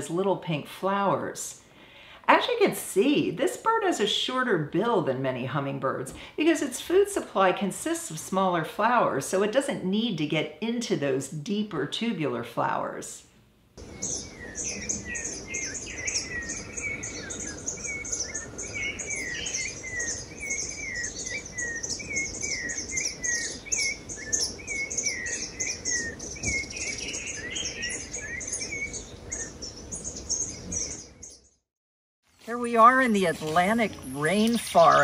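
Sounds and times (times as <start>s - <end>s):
lower slurred bird notes: 13.8s - 31.6s
rapid high bird chirps: 13.8s - 31.6s.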